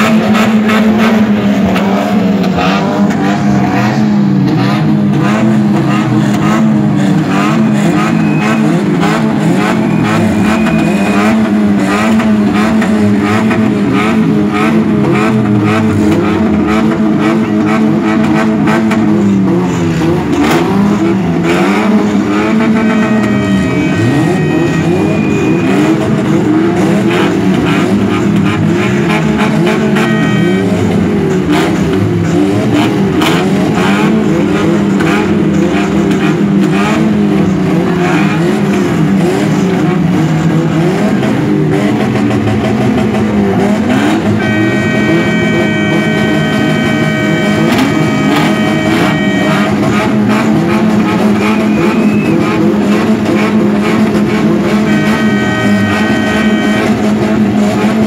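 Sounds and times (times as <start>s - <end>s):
car engines revving: 0.0s - 58.0s
high horn-like tone: 22.3s - 26.0s, 29.6s - 30.8s, 44.2s - 50.1s, 54.6s - 57.2s.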